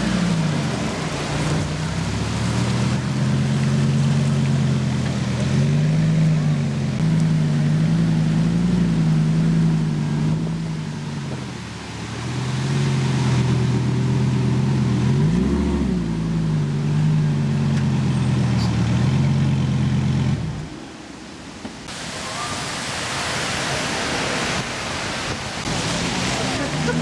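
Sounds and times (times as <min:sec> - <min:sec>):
car engine idling at low revs: 0:00.0 - 0:20.9.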